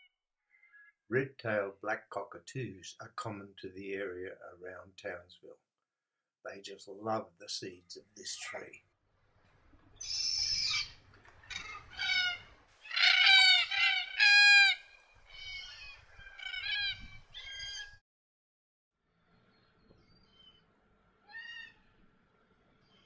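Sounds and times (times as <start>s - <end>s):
cockatoos harsh calls: 10.0s - 17.8s.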